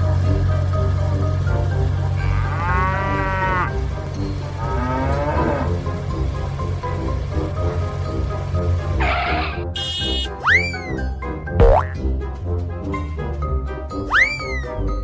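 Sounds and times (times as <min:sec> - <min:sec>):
cartoon cow mooing: 0:02.2 - 0:03.8
upbeat children's music: 0:09.8 - 0:15.0.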